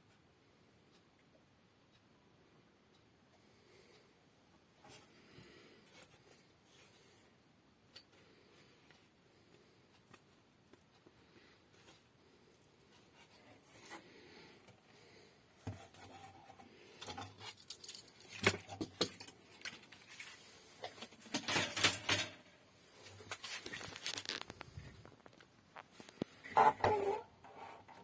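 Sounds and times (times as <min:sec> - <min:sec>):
small hard objects clicking and clattering: 0:17.1 - 0:20.3, 0:23.3 - 0:25.4.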